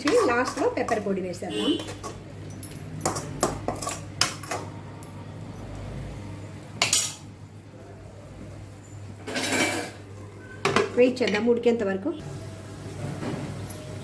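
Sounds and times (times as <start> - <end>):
metal cookware clinking: 0.0 - 5.2, 6.8 - 7.3, 9.2 - 10.0.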